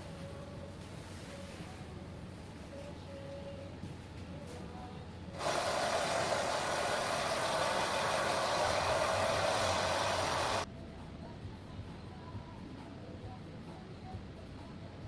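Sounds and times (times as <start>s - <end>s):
hair dryer blowing: 5.4s - 10.6s.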